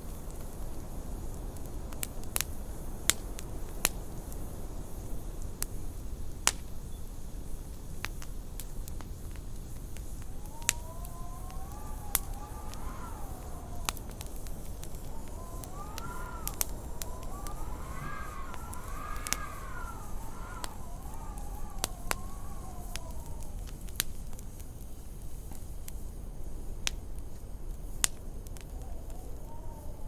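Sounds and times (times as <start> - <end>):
wood fire crackling and popping: 0.0 - 30.0
wind howling: 9.8 - 24.6.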